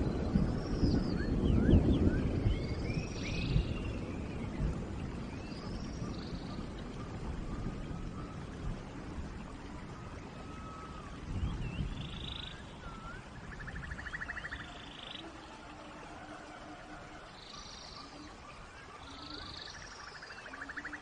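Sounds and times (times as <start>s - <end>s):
rain hiss: 0.0s - 21.0s
whistled animal calls: 9.5s - 21.0s.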